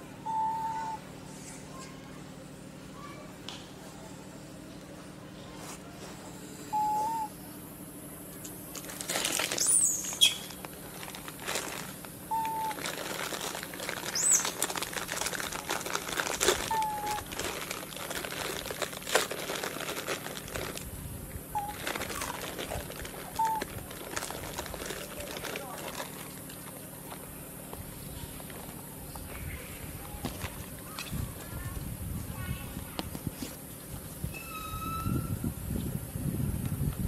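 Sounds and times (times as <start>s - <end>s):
bird whistling: 0.2s - 1.0s, 6.6s - 7.4s, 9.6s - 10.6s, 12.3s - 12.8s, 14.1s - 14.6s, 16.7s - 17.2s, 21.5s - 22.4s, 23.3s - 23.7s, 34.3s - 35.4s.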